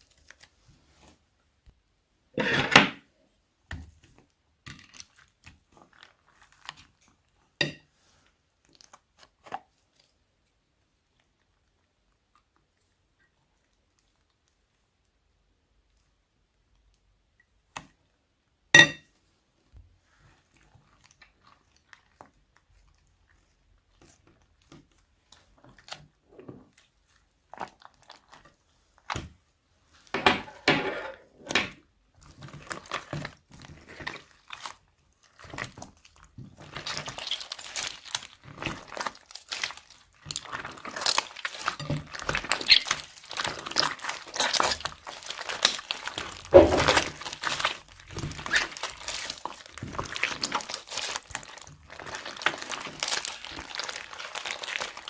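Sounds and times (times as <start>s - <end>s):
squishy slime handling: 20.3s - 30.1s, 31.2s - 55.0s
crinkling plastic bags: 32.2s - 55.0s.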